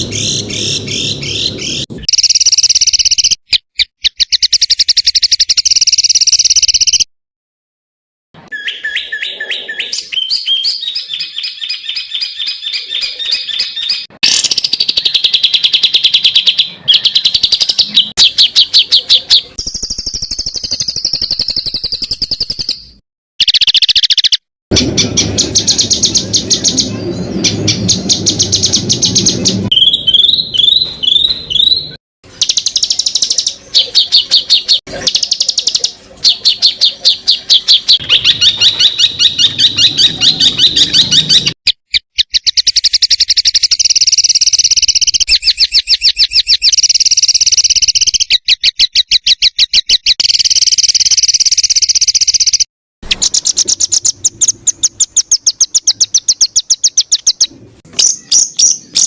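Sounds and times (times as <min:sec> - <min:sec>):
songbird trills and chattering: 0:00.1 - 0:07.1, 0:08.5 - 0:24.4, 0:25.0 - 0:59.0
slurred bird whistles: 0:25.5 - 0:35.6.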